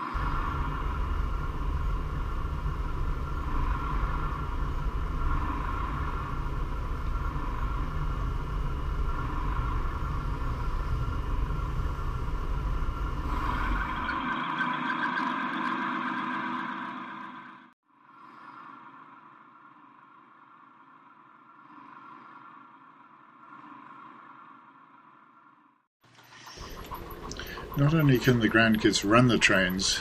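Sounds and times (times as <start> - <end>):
model train rumbling on track: 26.5 - 30.0.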